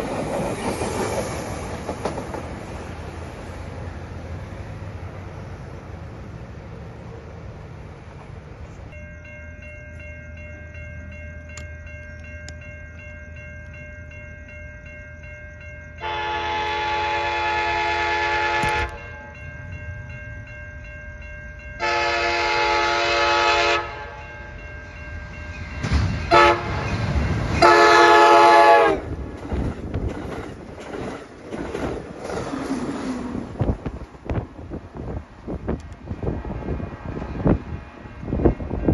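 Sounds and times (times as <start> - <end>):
train rumbling and clattering: 0.0 - 38.9
train horn blasts: 16.0 - 19.4, 21.8 - 24.4, 26.3 - 26.9, 27.6 - 29.1.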